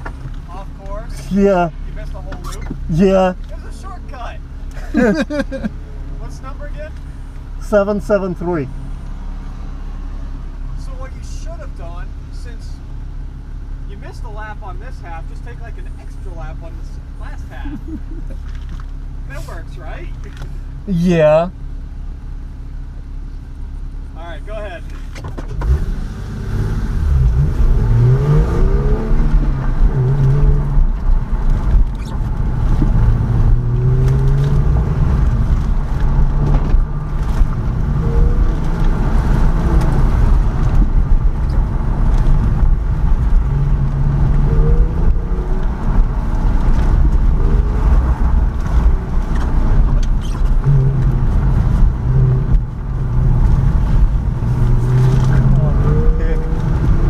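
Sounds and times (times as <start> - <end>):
road and wind noise: 0.0 - 57.0
car engine revving: 25.5 - 57.0.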